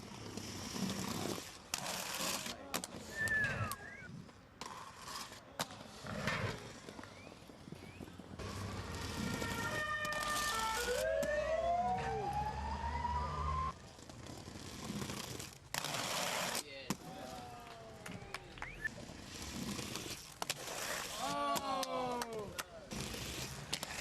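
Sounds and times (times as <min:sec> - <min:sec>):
siren-like gliding tones: 0:08.4 - 0:13.8.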